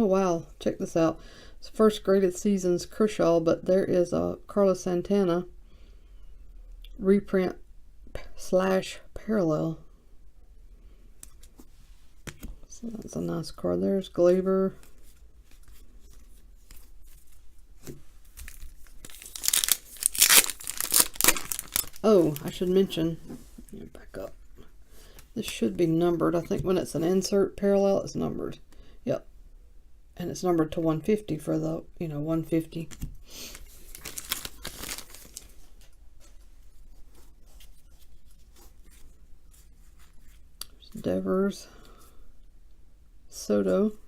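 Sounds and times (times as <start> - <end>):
wrapping crinkling and rustling: 14.7 - 22.9, 32.9 - 40.6.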